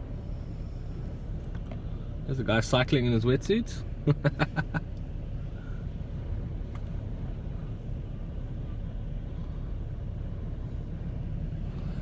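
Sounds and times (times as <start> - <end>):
storm wind: 5.1 - 12.0.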